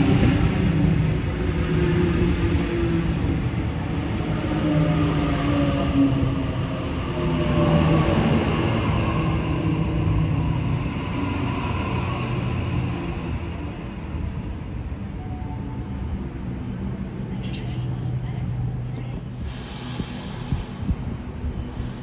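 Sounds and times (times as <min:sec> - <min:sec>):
train wheels rumbling on rails: 0:00.0 - 0:22.0
train humming held tones: 0:15.0 - 0:22.0.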